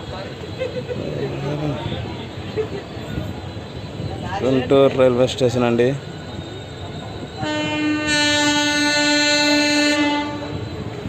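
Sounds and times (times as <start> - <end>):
low train noise: 0.0 - 11.0
locomotive horn blast: 7.4 - 10.8.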